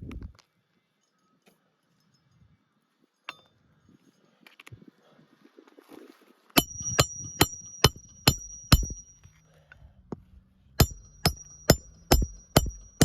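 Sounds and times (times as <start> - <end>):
hammer striking nail: 6.6 - 9.2, 10.8 - 13.0.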